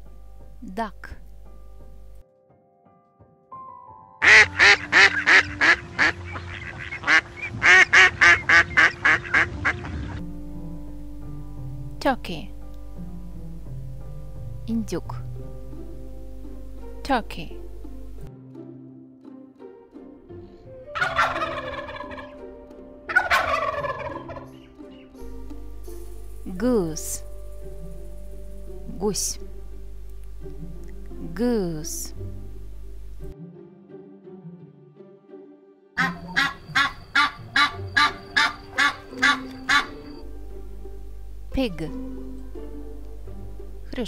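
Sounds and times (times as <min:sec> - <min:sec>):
duck quacking: 0:04.2 - 0:10.2, 0:21.0 - 0:22.3, 0:36.0 - 0:40.1
turkeys gobbling: 0:04.2 - 0:10.2, 0:20.9 - 0:22.4, 0:23.1 - 0:25.0, 0:36.0 - 0:40.2.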